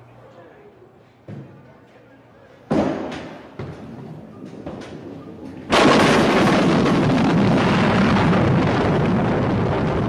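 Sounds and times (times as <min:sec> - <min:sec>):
bowling pins crashing: 0:02.7 - 0:10.0.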